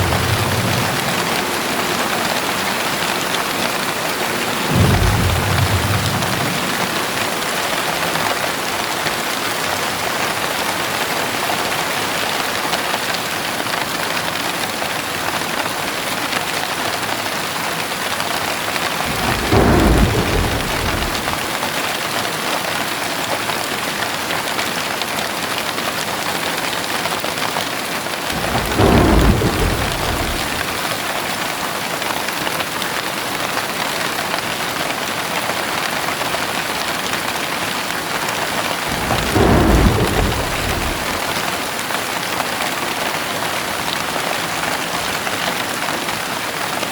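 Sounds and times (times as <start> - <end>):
rolling thunder: 0.0 - 8.2, 18.9 - 21.8, 28.3 - 31.2, 38.8 - 41.8
heavy rain: 0.0 - 46.9.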